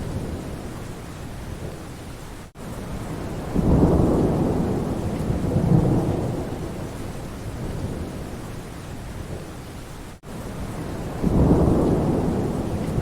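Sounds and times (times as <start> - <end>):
rain falling on forest: 0.0 - 13.0
thunder rumbling: 11.0 - 13.0.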